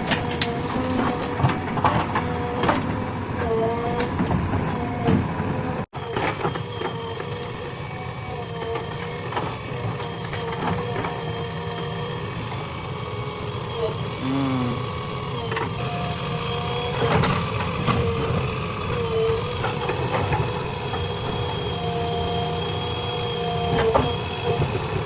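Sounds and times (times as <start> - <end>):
digging knocks and clanks: 0.0 - 7.7, 15.5 - 22.1
diesel engine under load: 0.0 - 25.0
hydraulic whine: 0.0 - 25.0.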